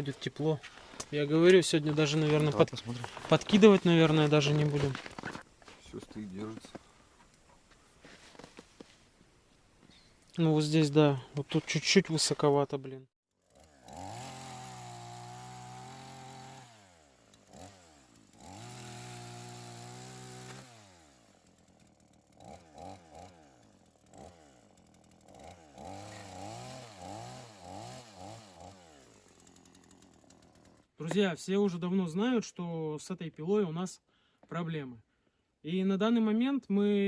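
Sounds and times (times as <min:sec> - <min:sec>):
chainsaw revving: 0:00.0 - 0:05.4, 0:13.3 - 0:31.1.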